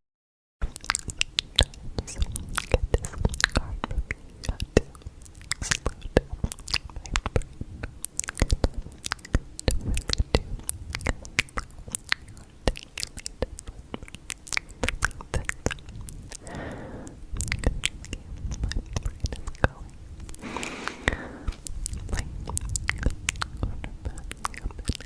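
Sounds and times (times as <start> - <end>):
short breathy sound: 16.4 - 17.2, 20.4 - 21.6.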